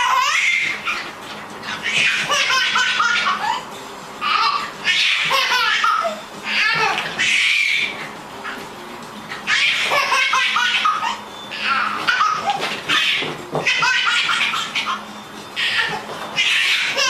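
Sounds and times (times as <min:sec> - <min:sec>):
pet animal high-pitched calls: 0:00.0 - 0:08.6, 0:09.3 - 0:17.0.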